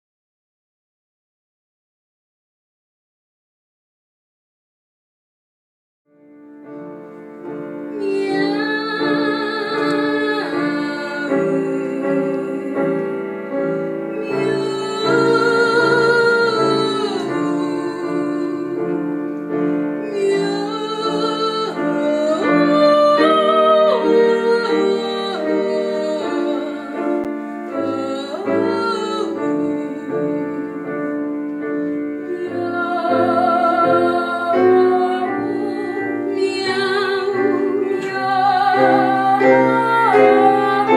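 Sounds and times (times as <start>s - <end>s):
piano accompaniment: 6.1s - 40.9s
woman singing operatically: 7.9s - 30.6s, 32.2s - 40.9s.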